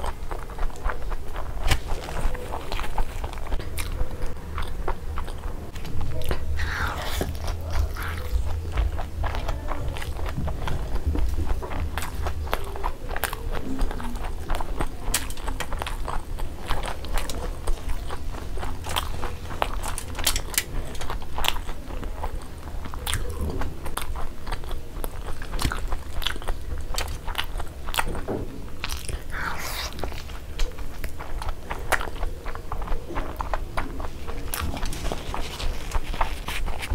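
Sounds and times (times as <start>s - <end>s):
close chewing with wet smacks: 0.0s - 36.9s.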